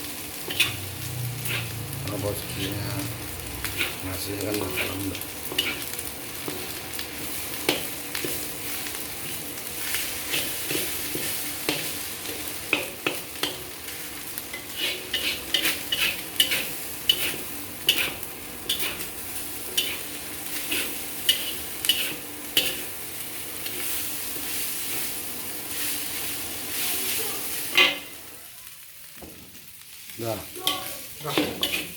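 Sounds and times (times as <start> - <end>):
rice sizzling in a wok: 0.0 - 31.9
spatula clanking on a pan: 0.4 - 1.8, 3.6 - 6.7, 7.6 - 8.5, 10.2 - 13.8, 14.5 - 19.1, 19.7 - 22.9, 27.7 - 28.2, 30.6 - 31.9.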